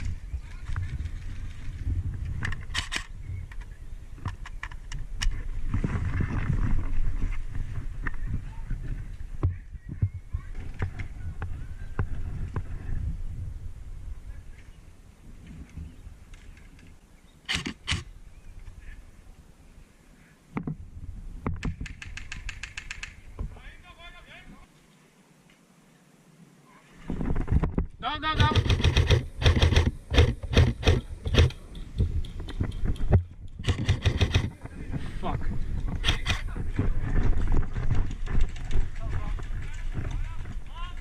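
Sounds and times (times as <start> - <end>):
wind and movement rustle: 0.0 - 41.0
sharp clicks and snaps: 21.6 - 23.2, 35.8 - 36.5
airsoft guns firing: 28.4 - 31.6, 33.6 - 34.6.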